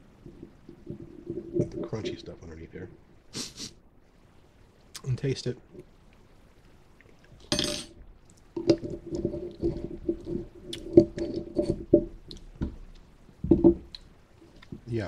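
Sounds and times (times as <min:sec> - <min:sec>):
wet chewing and crunching: 0:08.2 - 0:13.1.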